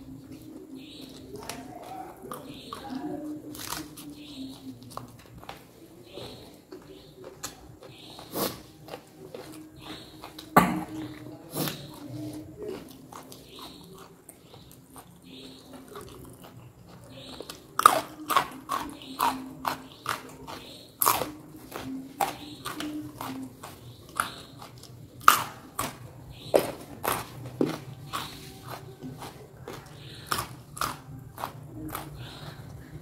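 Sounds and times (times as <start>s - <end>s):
person chewing crunchy food: 0.0s - 33.0s
sharp crunching bites: 17.3s - 23.4s.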